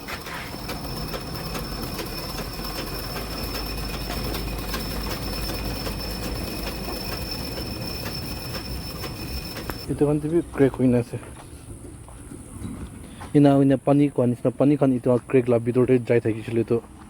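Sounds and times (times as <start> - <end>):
sewing machine running: 0.0 - 9.9.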